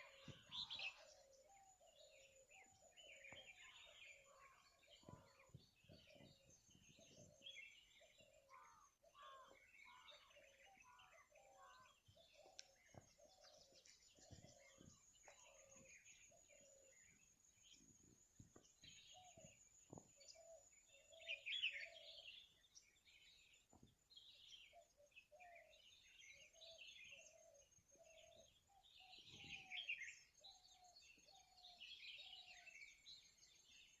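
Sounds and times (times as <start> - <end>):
birds chirping and tweeting: 0.0 - 34.0.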